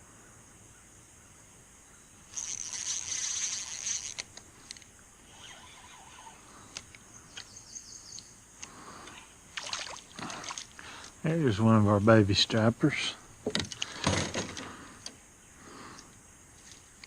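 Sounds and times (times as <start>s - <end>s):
fishing reel whirring: 2.3s - 6.4s.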